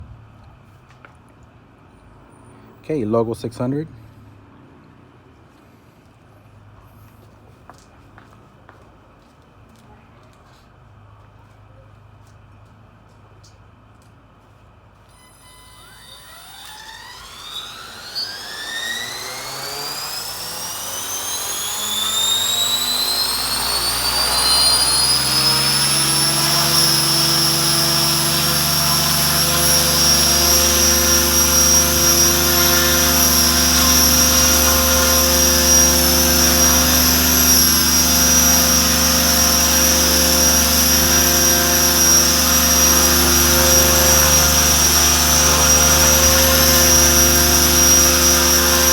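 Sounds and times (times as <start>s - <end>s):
rc helicopter motor whine: 15.1s - 48.9s.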